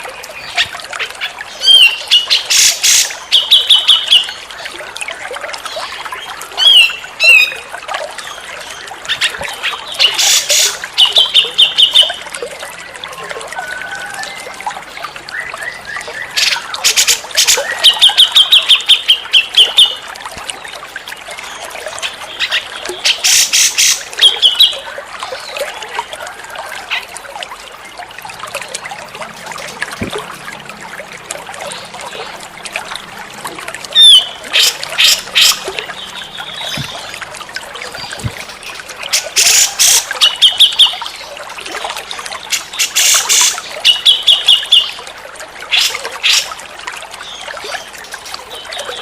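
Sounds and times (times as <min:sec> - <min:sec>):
running water trickling: 0:00.0 - 0:49.0
bulbul calling: 0:33.9 - 0:38.5.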